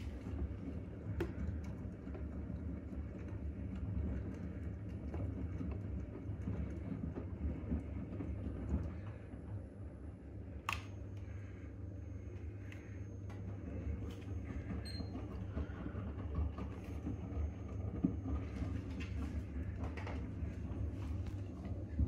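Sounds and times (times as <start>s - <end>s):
washing machine drum rumbling: 13.2s - 22.0s.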